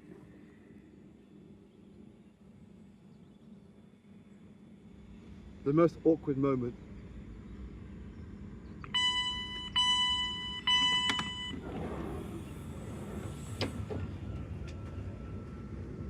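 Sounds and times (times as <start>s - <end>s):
faint steady whine: 0.0s - 16.0s
train warning tones: 8.8s - 16.0s.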